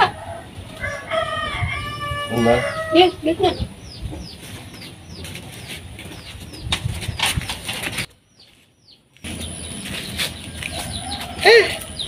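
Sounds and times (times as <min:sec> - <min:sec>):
small bird chirping: 0:03.4 - 0:12.0.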